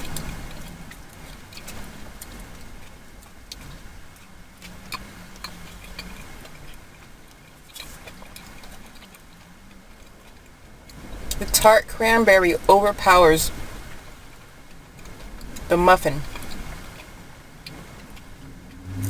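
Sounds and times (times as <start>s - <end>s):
clicks of biting and chewing: 0.0s - 11.4s, 13.5s - 19.0s
faint low hum: 17.9s - 19.0s.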